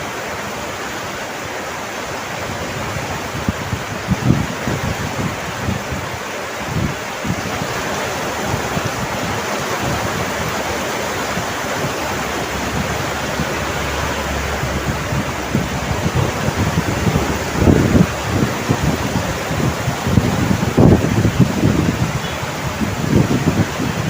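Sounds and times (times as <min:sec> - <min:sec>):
heavy rain: 0:00.0 - 0:24.0
low rumbling: 0:06.7 - 0:24.0.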